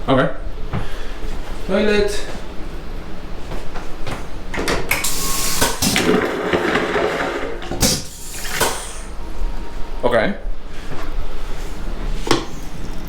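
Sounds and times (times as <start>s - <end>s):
toilet flushing: 4.5s - 9.4s.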